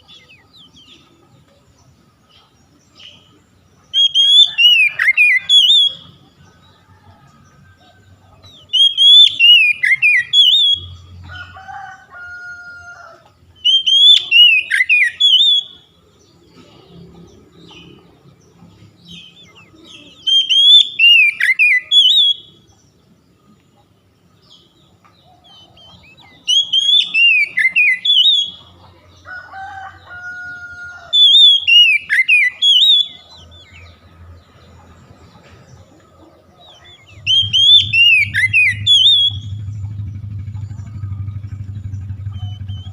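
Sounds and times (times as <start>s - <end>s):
bird singing whistled phrases: 3.9s - 6.2s, 8.7s - 11.0s, 13.6s - 15.9s, 19.2s - 22.6s, 26.0s - 28.6s, 31.1s - 33.4s, 37.0s - 39.6s, 42.2s - 42.9s.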